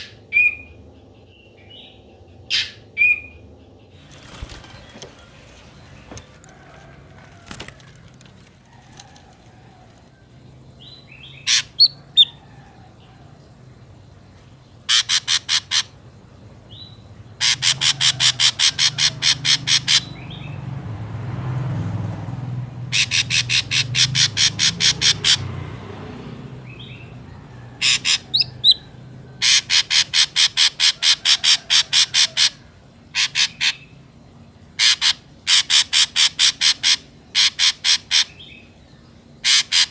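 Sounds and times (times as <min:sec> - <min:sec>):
bird calling harsh repeated notes: 0:02.4 - 0:05.1, 0:11.3 - 0:12.4, 0:14.8 - 0:16.0, 0:17.4 - 0:20.4, 0:22.9 - 0:25.5, 0:27.8 - 0:34.0, 0:34.7 - 0:38.8, 0:39.4 - 0:39.9.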